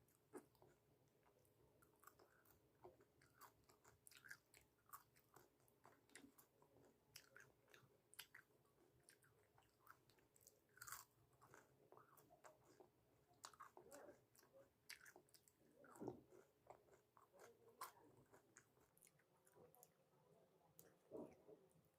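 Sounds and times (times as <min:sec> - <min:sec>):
chewing food with crunches: 0:00.0 - 0:21.9.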